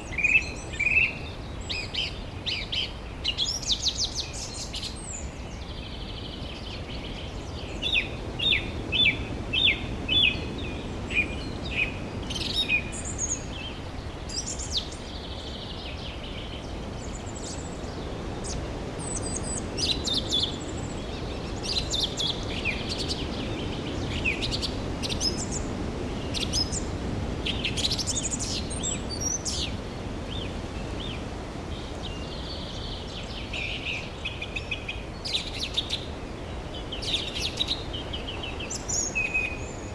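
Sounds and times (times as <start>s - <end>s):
birds chirping: 16.8s - 34.8s.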